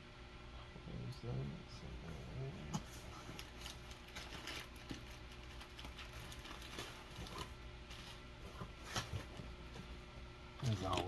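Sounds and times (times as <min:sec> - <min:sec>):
cardboard and wrapping crinkling: 0:02.7 - 0:10.0, 0:10.6 - 0:11.0.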